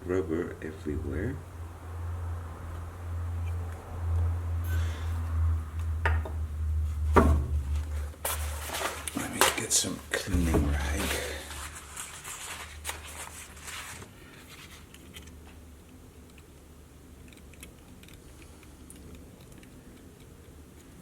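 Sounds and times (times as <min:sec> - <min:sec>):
low steady hum: 0:00.0 - 0:21.0
rag rustling: 0:07.0 - 0:14.9
small clicks: 0:14.9 - 0:21.0.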